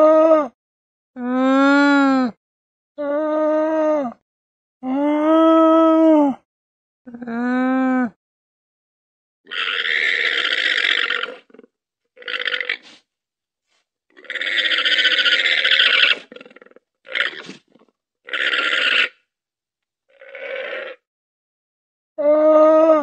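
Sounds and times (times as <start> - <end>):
llama giving harsh rasping calls: 9.5 - 13.0, 14.1 - 19.2.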